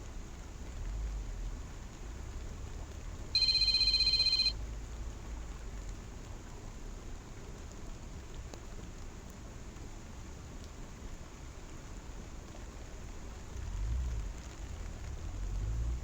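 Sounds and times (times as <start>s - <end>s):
rain and falling water: 0.0s - 3.4s, 4.6s - 16.0s
high electronic trilling tone: 3.4s - 4.5s.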